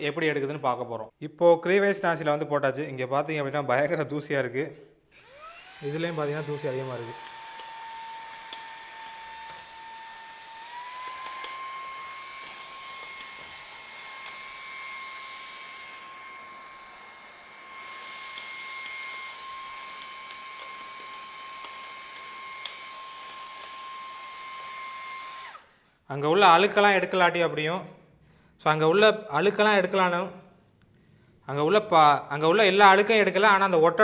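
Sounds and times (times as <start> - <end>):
handheld vacuum whining: 5.1 - 25.8.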